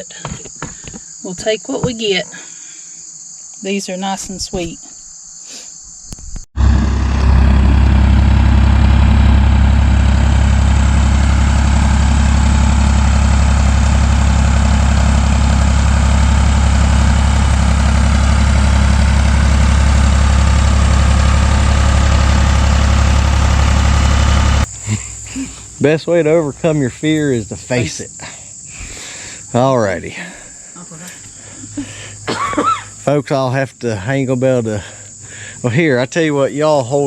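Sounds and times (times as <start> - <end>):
backhoe engine idling: 6.6 - 27.8.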